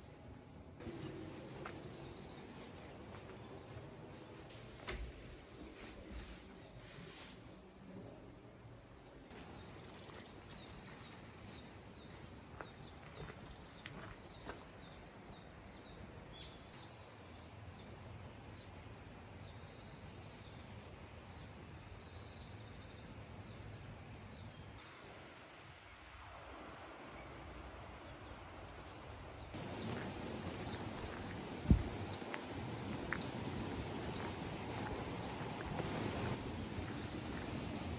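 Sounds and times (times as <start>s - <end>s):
faint outdoor hiss: 0.0s - 37.9s
birds chirping: 29.6s - 37.9s.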